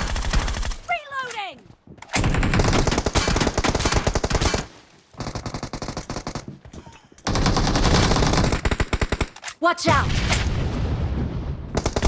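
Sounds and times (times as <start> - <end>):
video game automatic gunfire: 0.0 - 0.9, 2.2 - 6.4, 7.3 - 9.3, 11.8 - 12.0.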